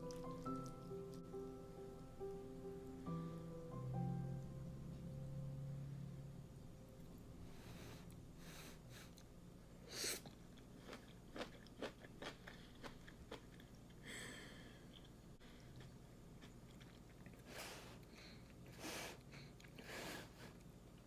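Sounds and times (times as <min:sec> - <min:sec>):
soft chewing clicks: 0:00.0 - 0:01.2, 0:10.2 - 0:14.0, 0:14.8 - 0:19.8.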